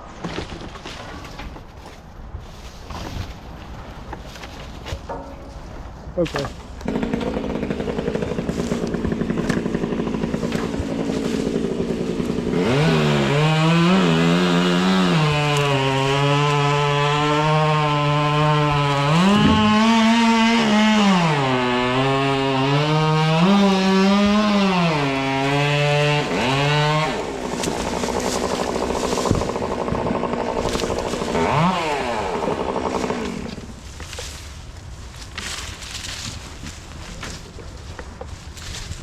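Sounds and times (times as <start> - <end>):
chainsaw at full throttle: 6.8 - 33.8.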